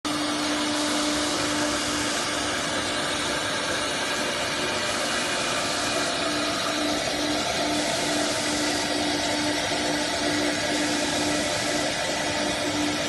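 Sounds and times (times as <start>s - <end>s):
cnc router whirring: 0.1s - 13.0s
steady hum: 0.1s - 13.0s.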